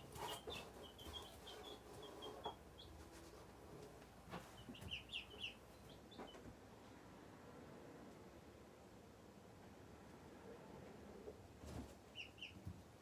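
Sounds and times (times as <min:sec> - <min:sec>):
chicks peeping: 0:00.0 - 0:03.5, 0:04.3 - 0:06.4, 0:12.1 - 0:12.8.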